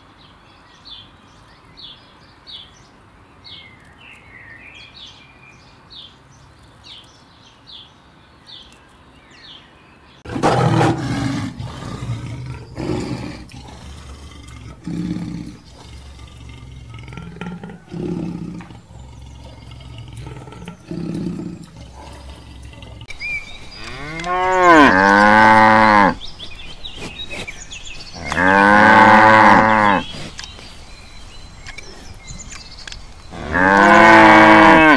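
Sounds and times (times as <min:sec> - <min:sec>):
lion roaring: 0:10.3 - 0:23.1.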